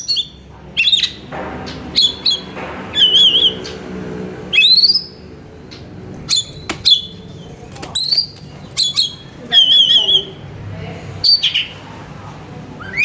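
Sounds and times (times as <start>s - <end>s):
bird singing whistled phrases: 8.0s - 10.4s, 12.8s - 13.0s.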